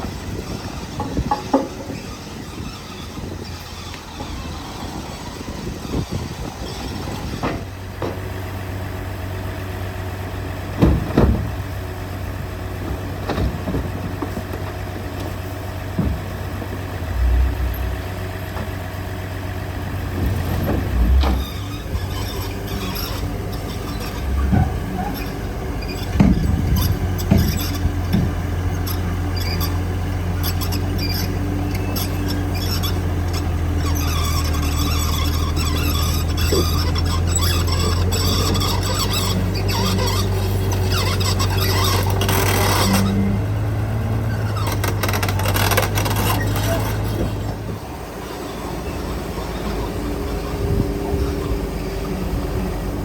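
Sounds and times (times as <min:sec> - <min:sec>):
heavy machinery diesel engine: 0:00.0 - 0:53.0
short clunks: 0:00.4 - 0:04.6, 0:05.9 - 0:08.3, 0:10.8 - 0:11.7, 0:12.8 - 0:18.8, 0:20.1 - 0:29.8
high squeaks and clicks: 0:00.4 - 0:07.7, 0:21.1 - 0:43.6, 0:44.2 - 0:47.7.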